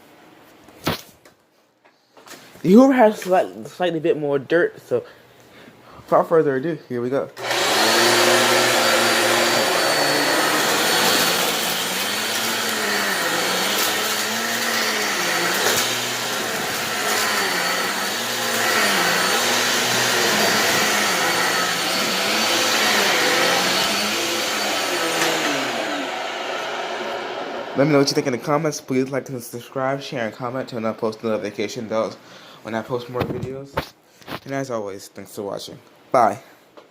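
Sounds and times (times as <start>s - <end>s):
vacuum cleaner running on carpet: 7.4s - 28.6s.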